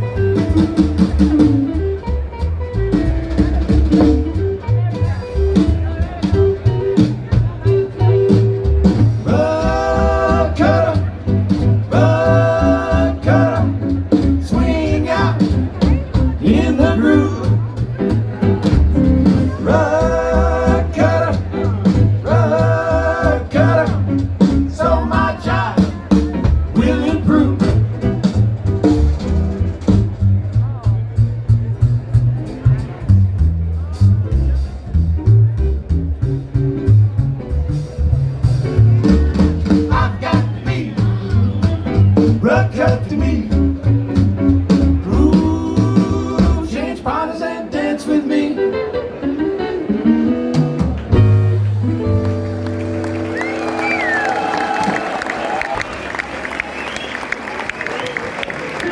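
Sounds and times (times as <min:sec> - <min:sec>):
band playing: 0:00.0 - 0:58.9
person singing long notes: 0:09.2 - 0:15.7, 0:19.3 - 0:25.9, 0:45.0 - 0:49.1.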